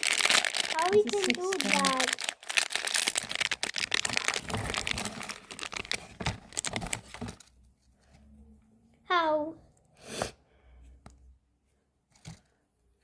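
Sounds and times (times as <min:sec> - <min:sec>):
packaging crinkling and tearing: 0:00.0 - 0:07.5.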